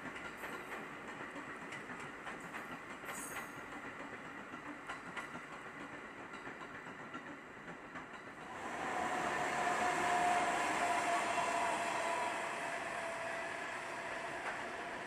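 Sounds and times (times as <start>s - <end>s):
train wheels rumbling: 0.0s - 15.0s
locomotive high whine: 8.5s - 15.0s.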